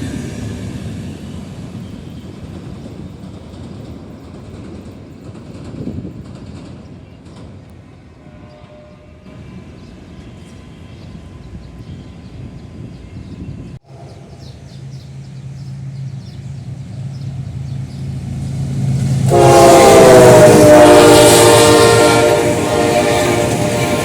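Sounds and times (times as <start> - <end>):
train wheel noise: 0.0 - 24.0
multi-tone train horn: 8.2 - 9.5, 19.1 - 24.0
locomotive engine rumble: 9.3 - 24.0.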